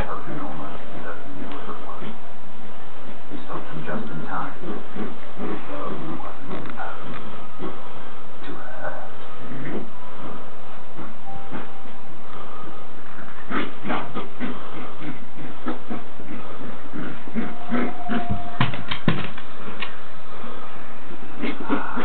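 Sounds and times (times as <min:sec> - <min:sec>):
puppies growling: 0:03.5 - 0:11.7, 0:13.2 - 0:18.9.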